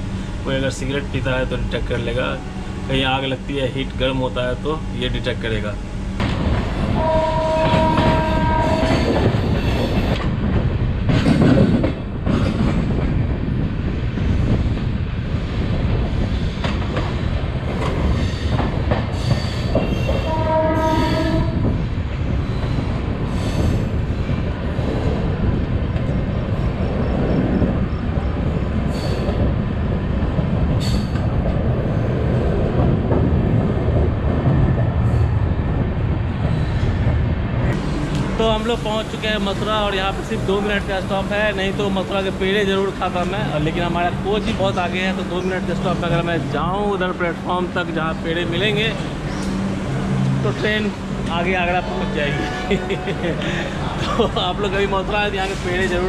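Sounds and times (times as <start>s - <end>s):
train rumbling on rails: 0.0s - 56.0s
train horn: 7.0s - 9.2s, 20.1s - 21.7s, 52.2s - 53.2s.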